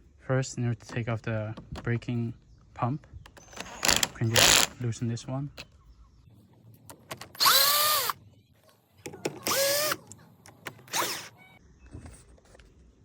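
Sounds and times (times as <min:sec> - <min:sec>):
power driver motor whirring: 0:07.4 - 0:08.2, 0:09.4 - 0:10.0, 0:10.9 - 0:11.4.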